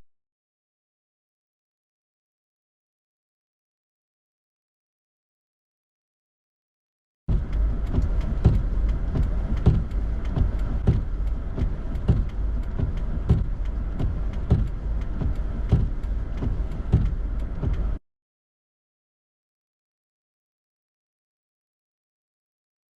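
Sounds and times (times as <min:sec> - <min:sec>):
regular sharp knocks: 0:07.3 - 0:17.8
vehicle low rumble: 0:07.3 - 0:18.0.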